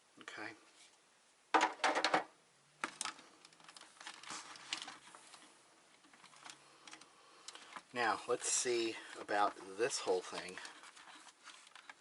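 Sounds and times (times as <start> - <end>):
plastic parts clicking and rattling: 1.6 - 7.9, 9.1 - 12.0.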